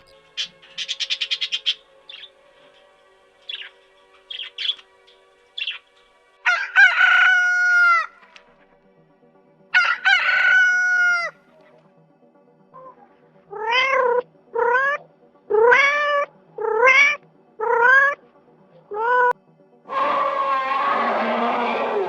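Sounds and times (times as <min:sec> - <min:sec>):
soft background music: 0:00.0 - 0:22.0
animal calls: 0:12.8 - 0:18.2, 0:19.9 - 0:22.0.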